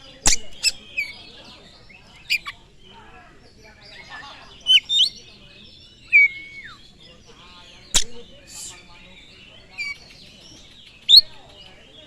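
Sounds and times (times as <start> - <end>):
bird singing whistled phrases: 0.2 - 1.3, 3.9 - 7.0, 7.8 - 10.1, 11.0 - 11.7.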